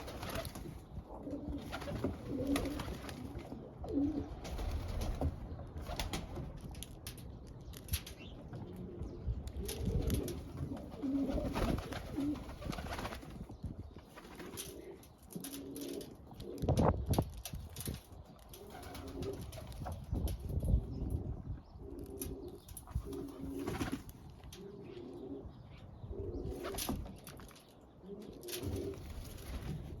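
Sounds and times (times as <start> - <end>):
pigeon cooing: 24.5 - 26.7.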